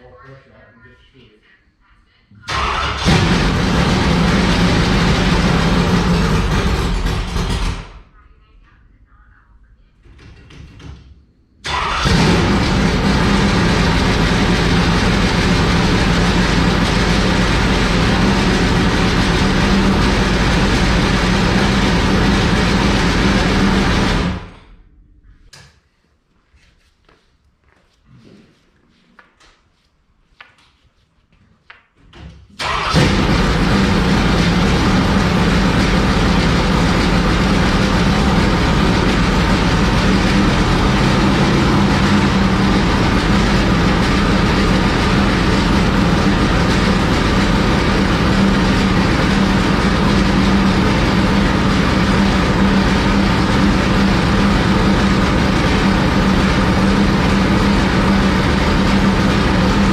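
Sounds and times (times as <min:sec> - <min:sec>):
engine starting and running loud: 0:02.4 - 0:08.1, 0:11.6 - 0:24.9, 0:32.6 - 0:59.9.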